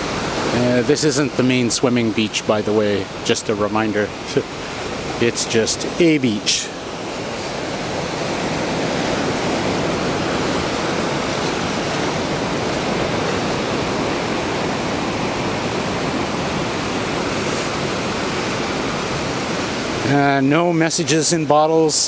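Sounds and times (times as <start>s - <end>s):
ocean surf on sand: 0.0s - 22.0s.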